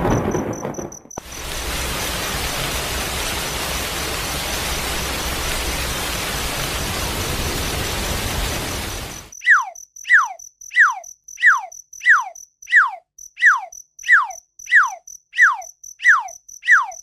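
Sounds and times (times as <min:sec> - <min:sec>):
high pulsing chirp: 0:09.3 - 0:17.0
whistled call sliding downward: 0:09.4 - 0:17.0.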